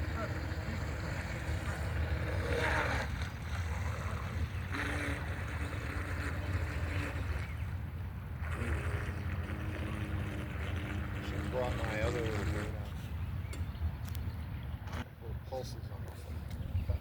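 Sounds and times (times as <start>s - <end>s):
electric model boats passing: 0.0s - 13.4s
wind rumble on microphone: 15.8s - 17.0s.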